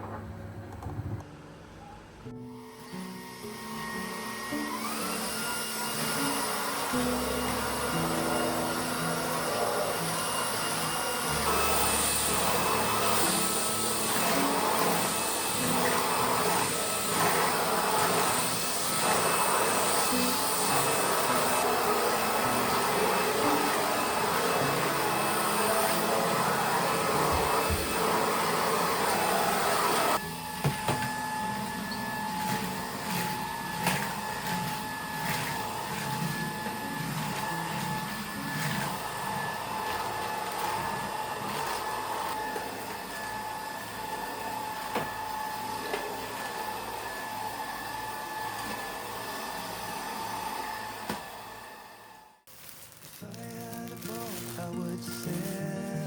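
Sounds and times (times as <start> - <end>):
vacuum cleaner running: 2.2 - 56.0.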